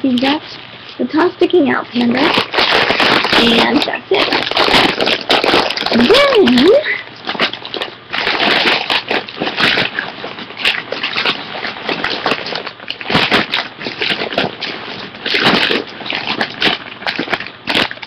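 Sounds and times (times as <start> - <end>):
packaging rustling and crinkling: 1.9 - 18.0.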